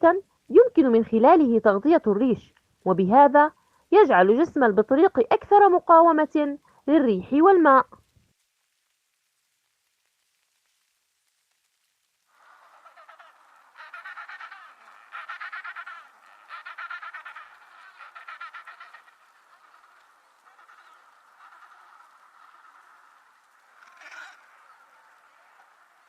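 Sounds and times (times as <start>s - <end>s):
penguins calling: 12.4s - 25.8s.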